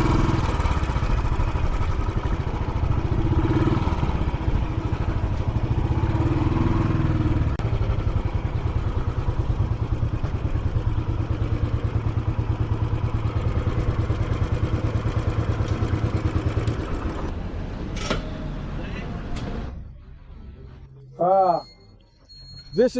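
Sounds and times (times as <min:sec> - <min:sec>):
motorcycle engine running: 0:00.0 - 0:17.3.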